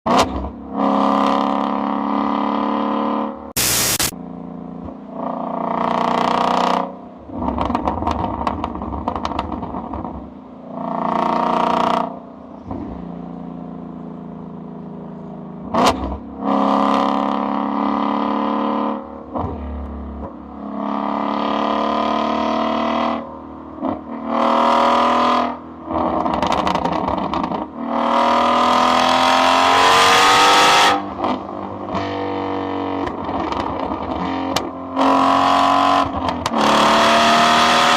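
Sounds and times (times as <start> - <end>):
sharp exhaust crack: 3.6 - 4.2
car engine revving: 15.2 - 37.9.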